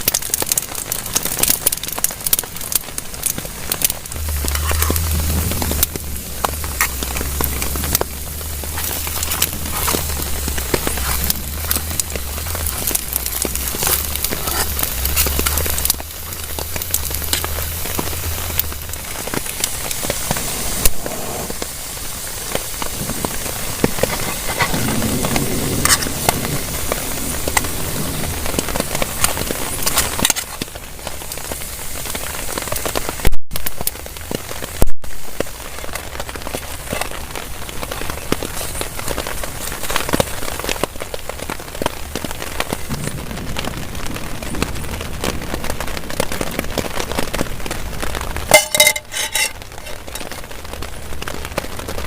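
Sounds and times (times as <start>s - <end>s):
heavy rain on a tarp: 0.0s - 52.0s
low hum: 3.2s - 21.6s.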